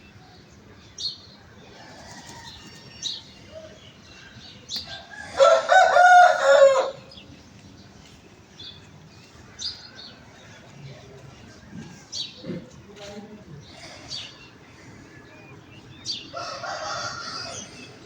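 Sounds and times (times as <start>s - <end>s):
rooster crowing: 4.9s - 7.1s, 16.3s - 18.0s.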